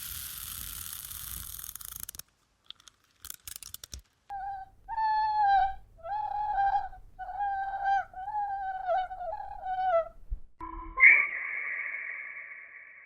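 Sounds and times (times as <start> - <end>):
hiss: 0.0 - 1.6
animal high-pitched cries: 4.3 - 10.1.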